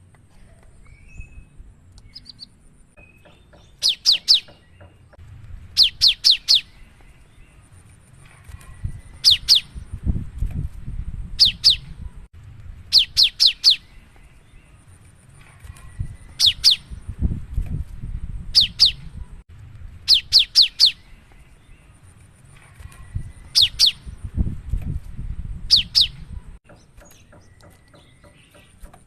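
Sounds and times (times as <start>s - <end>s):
bird singing sharp notes: 0.8s - 5.2s, 5.8s - 7.6s, 11.4s - 12.2s, 12.9s - 14.8s, 18.6s - 19.4s, 25.7s - 28.8s.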